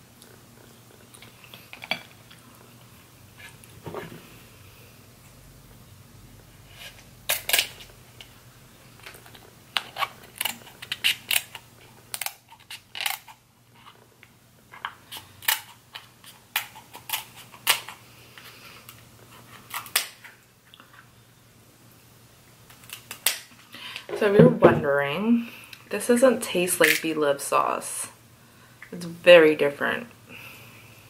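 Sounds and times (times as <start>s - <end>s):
crab shells cracking: 7.3s - 8.3s, 9.0s - 13.4s, 14.7s - 18.0s, 22.7s - 23.6s.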